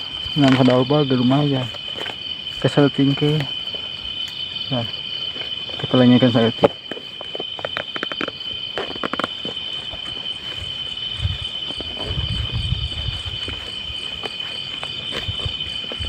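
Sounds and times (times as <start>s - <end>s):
crickets chirring: 0.0s - 16.0s
low thumps and rustles: 6.6s - 16.0s.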